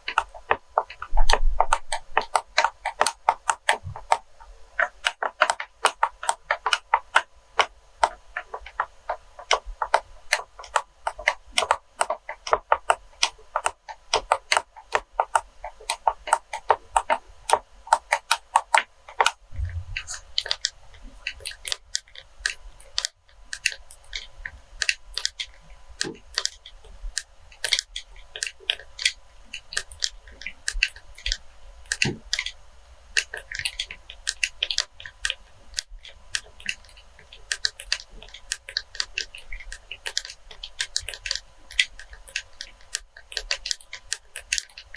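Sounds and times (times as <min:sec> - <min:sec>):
rapid light tapping: 0:00.0 - 0:44.9
low thump: 0:19.5 - 0:20.2.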